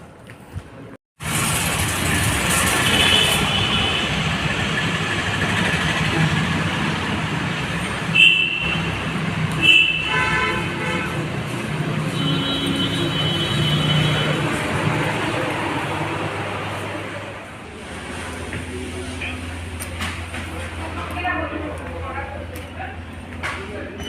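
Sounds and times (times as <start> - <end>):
road traffic: 0.0 - 24.0
vehicle horns honking: 2.7 - 4.3, 8.0 - 15.4.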